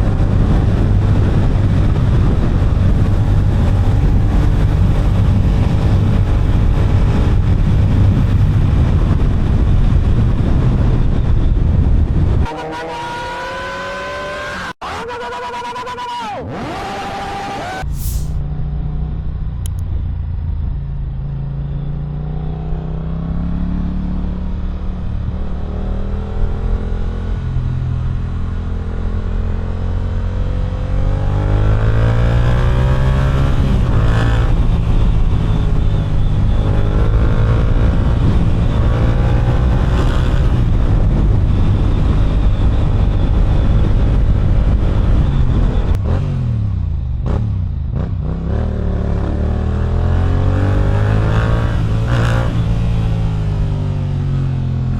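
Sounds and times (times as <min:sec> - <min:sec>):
motorcycle engine revving: 0:22.4 - 0:54.5.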